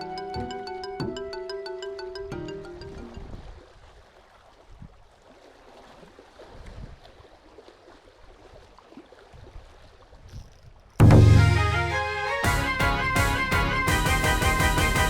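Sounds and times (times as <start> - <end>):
water lapping and gurgling: 2.3 - 11.4.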